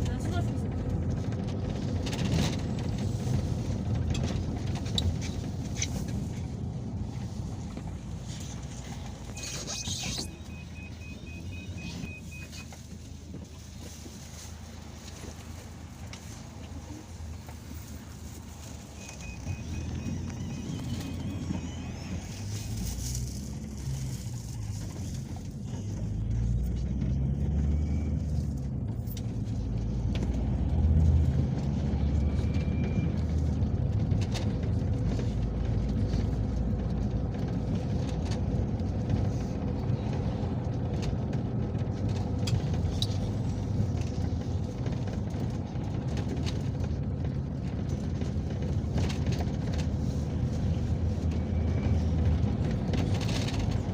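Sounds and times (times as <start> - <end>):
engine and road rumble: 0.0 - 53.9.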